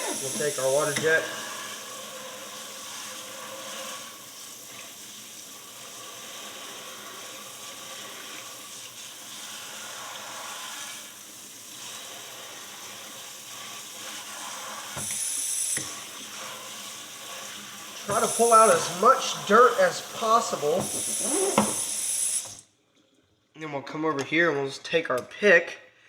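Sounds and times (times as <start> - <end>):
water jet spraying: 0.0 - 2.0, 18.0 - 22.5.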